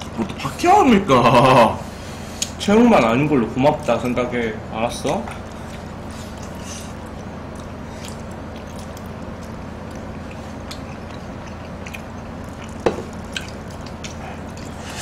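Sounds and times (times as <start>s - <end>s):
steady low hum: 0.0s - 15.0s
wet chewing: 5.0s - 15.0s.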